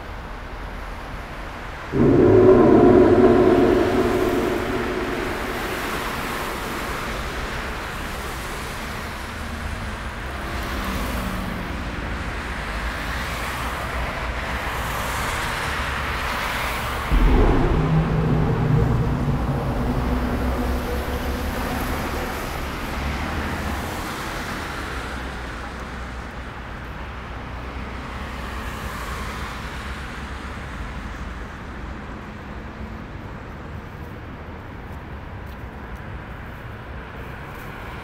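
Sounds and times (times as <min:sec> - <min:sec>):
low drone: 0:01.9 - 0:08.3, 0:17.1 - 0:23.2.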